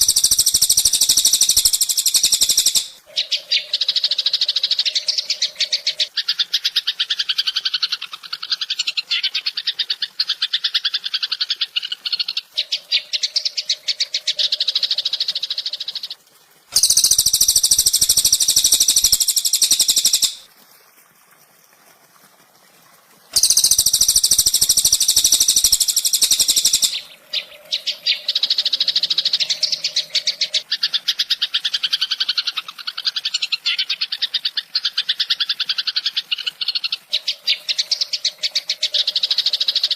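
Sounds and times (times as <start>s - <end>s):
songbird chattering trills: 0.0s - 6.1s, 16.8s - 20.4s, 23.4s - 30.6s.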